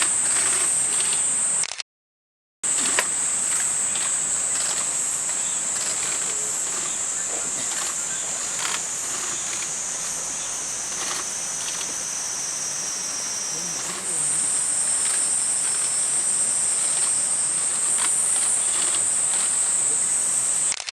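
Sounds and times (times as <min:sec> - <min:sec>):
high-pitched insect drone: 0:00.0 - 0:01.6, 0:02.7 - 0:20.9.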